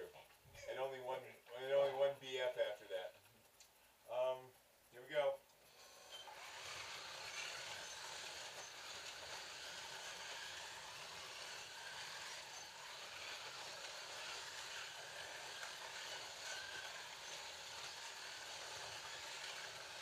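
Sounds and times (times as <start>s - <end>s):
slot car motors whirring: 5.6s - 20.0s
wheels rattling in track slots: 6.2s - 20.0s.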